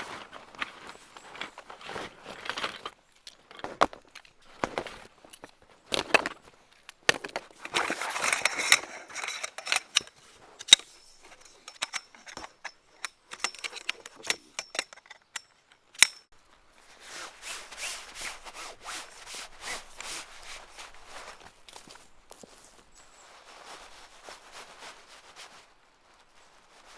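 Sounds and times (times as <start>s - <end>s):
rustling and scraping: 0.0s - 15.4s, 16.3s - 26.9s
footsteps on dry ground: 16.4s - 26.9s.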